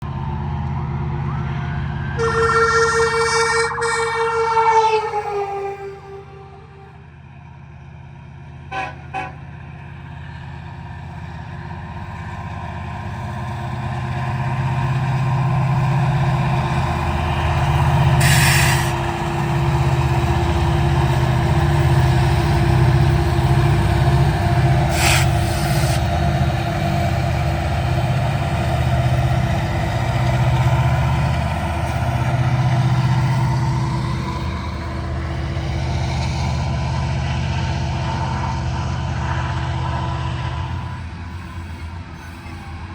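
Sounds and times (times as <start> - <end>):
diesel locomotives rumbling: 0.0 - 42.9
air hisses: 24.9 - 26.0.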